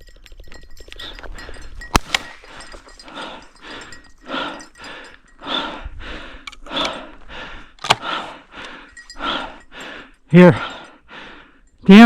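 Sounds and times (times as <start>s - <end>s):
person breathing hard: 1.0s - 11.8s.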